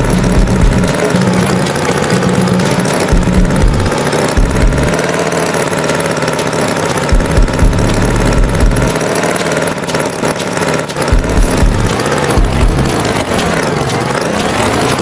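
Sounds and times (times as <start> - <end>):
uneven low thumps: 0.0 - 1.6, 2.4 - 5.0, 7.1 - 9.0, 11.1 - 13.4
tractor engine running: 0.0 - 15.0.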